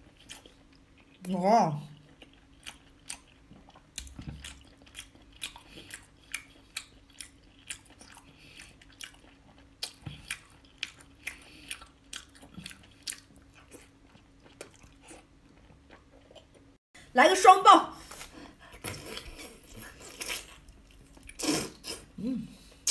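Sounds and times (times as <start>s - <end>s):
mouth chewing wet smacks: 2.0s - 16.6s.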